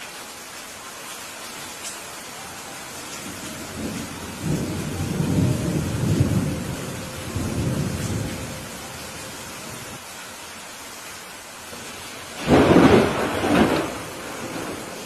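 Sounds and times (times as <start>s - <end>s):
rain hissing: 0.0s - 15.0s
thunder rumbling: 3.0s - 10.0s, 11.9s - 15.0s.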